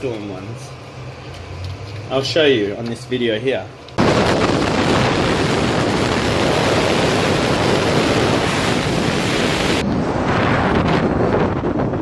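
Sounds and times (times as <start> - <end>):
wind buffeting a microphone: 4.0 - 12.0.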